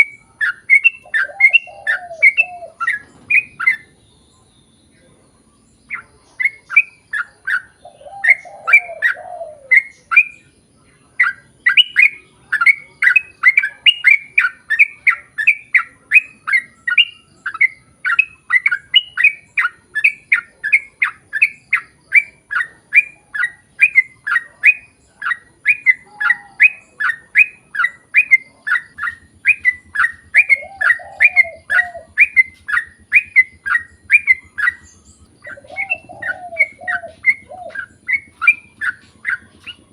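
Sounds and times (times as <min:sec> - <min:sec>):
bird chirping song: 0:00.0 - 0:39.9
lower warbling phrases: 0:24.1 - 0:39.9.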